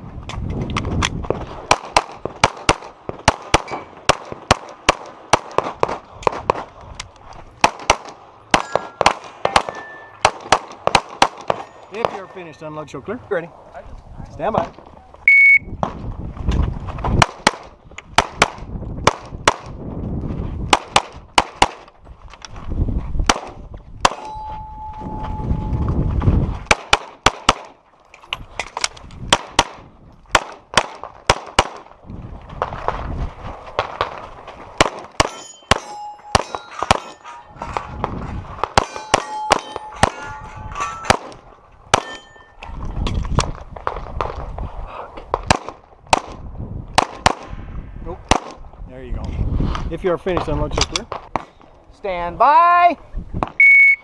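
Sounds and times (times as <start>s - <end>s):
pistol shots: 7.6s - 12.3s, 26.7s - 27.8s
steel targets clanging: 8.6s - 10.2s, 11.5s - 13.0s, 24.1s - 25.7s, 35.2s - 38.2s, 38.8s - 42.8s.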